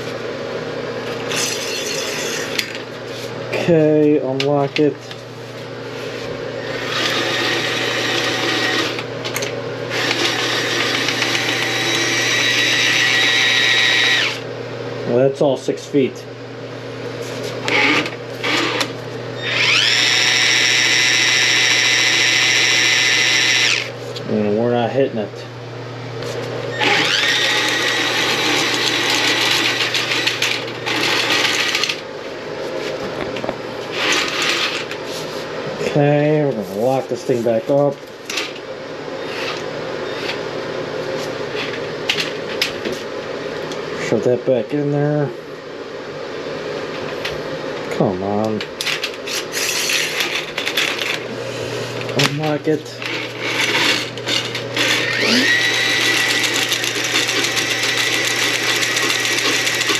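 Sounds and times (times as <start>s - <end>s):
drain auger motor whining: 6.5s - 14.5s, 17.6s - 23.9s, 26.7s - 32.0s, 53.0s - 59.9s.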